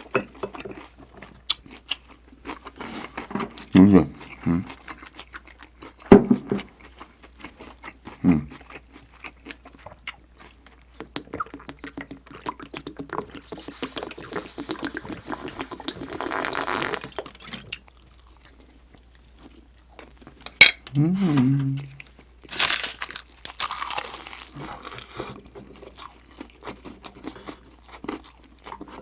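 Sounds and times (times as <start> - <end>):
chewing clicks and smacks: 8.6 - 16.1.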